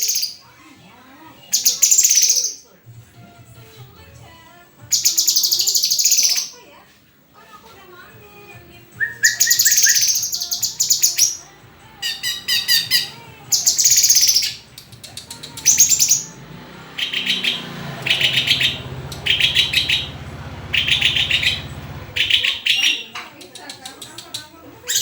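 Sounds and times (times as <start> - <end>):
songbird singing: 0.0 - 0.5, 1.4 - 2.7, 4.8 - 6.6, 9.0 - 25.0.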